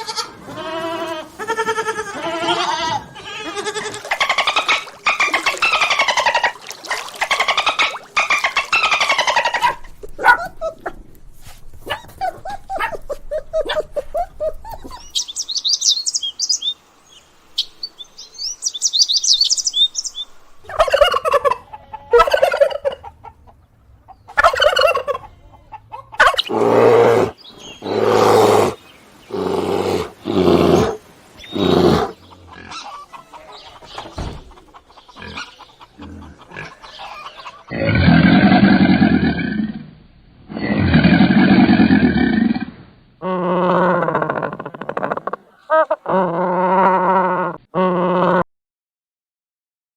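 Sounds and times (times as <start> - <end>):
loud farm animal calls: 0.0 - 10.4, 20.7 - 39.4
poultry chirping: 31.4 - 37.7.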